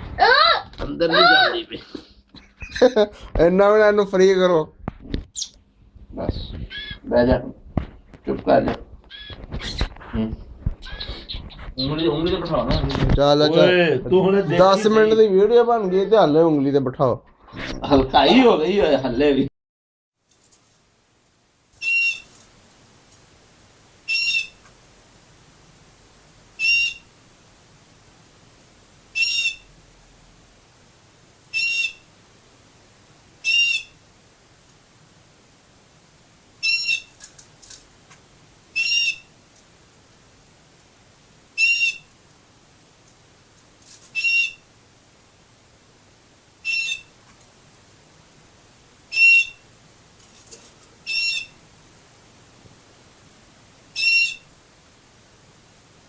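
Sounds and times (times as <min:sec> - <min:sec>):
canary call notes: 0:06.4 - 0:07.1, 0:09.1 - 0:09.9, 0:21.8 - 0:22.3, 0:24.1 - 0:24.6, 0:26.6 - 0:27.2, 0:29.1 - 0:29.8, 0:31.5 - 0:32.1, 0:33.4 - 0:34.0, 0:36.6 - 0:37.2, 0:38.7 - 0:39.3, 0:41.6 - 0:42.1, 0:44.1 - 0:44.7, 0:46.6 - 0:47.2, 0:49.1 - 0:49.7, 0:51.0 - 0:51.6, 0:53.9 - 0:54.5.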